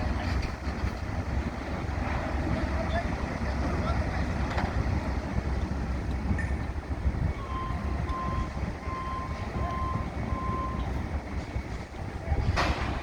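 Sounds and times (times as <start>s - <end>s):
vehicle backup alarm beeping: 6.3s - 12.0s.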